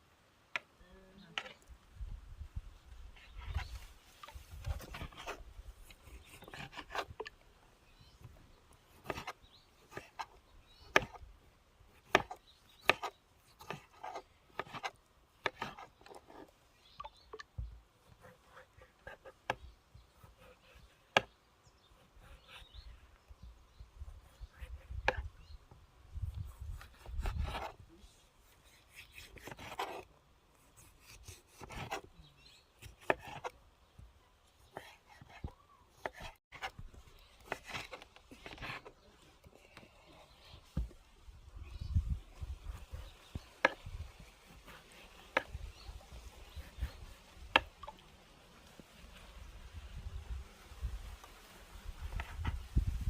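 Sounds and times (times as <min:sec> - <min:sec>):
scraping strokes: 0:28.4 - 0:30.1.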